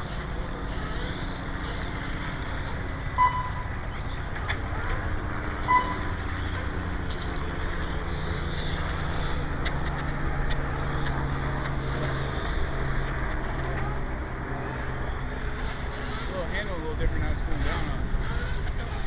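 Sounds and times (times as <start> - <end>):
low motor hum: 0.0 - 19.0
short electronic beep: 3.2 - 3.6, 5.6 - 6.1.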